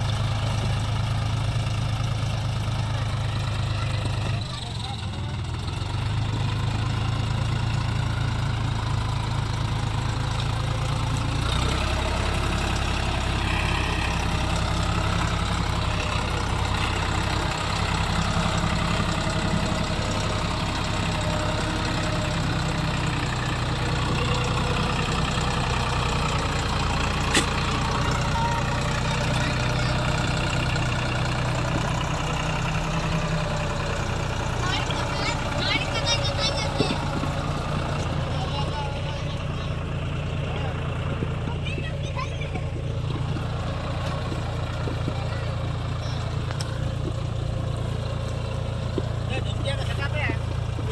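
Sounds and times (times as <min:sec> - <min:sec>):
diesel engine running at low revs: 0:00.0 - 0:50.9.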